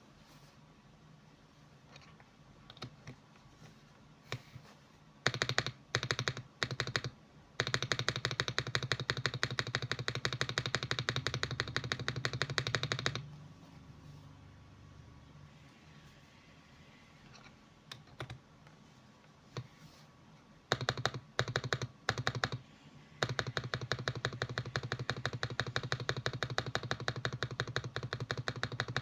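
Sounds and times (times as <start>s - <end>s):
mechanical keyboard typing: 1.9s - 3.2s, 5.2s - 13.3s, 17.3s - 18.4s, 20.7s - 22.6s, 23.2s - 29.0s.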